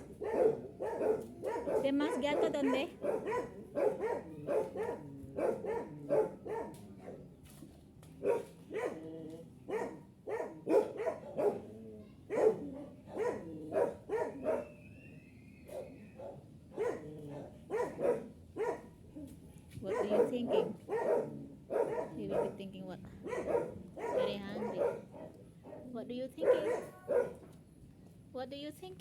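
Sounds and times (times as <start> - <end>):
dog barking: 0.0 - 7.3, 8.2 - 14.8, 15.7 - 19.0, 19.8 - 27.5.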